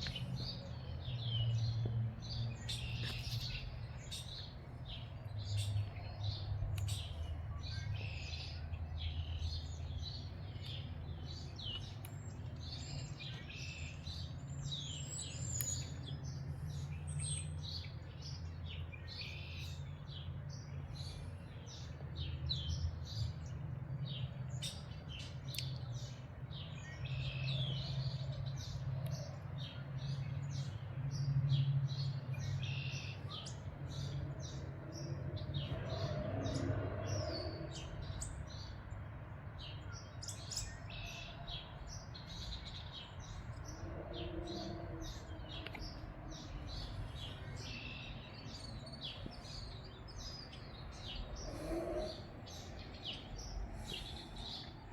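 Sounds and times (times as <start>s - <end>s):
songbirds chirping: 0.0s - 54.9s.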